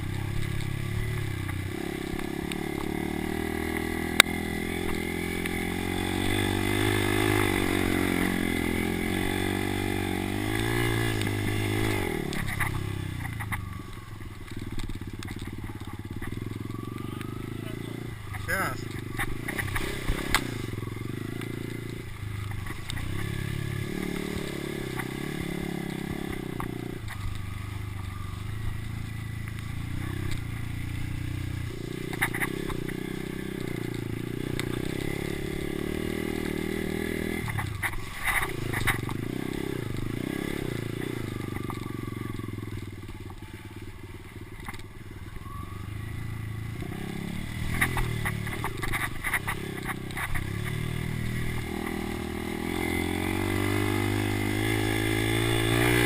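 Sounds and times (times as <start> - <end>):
motocross bike engine revving: 0.0 - 13.4, 15.0 - 27.4, 28.1 - 43.2, 46.0 - 56.0
sharp clicks: 32.1 - 33.0.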